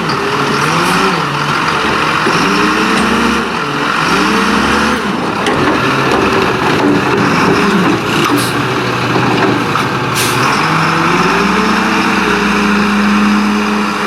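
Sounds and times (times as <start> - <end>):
garbage truck engine revving: 0.0 - 14.0.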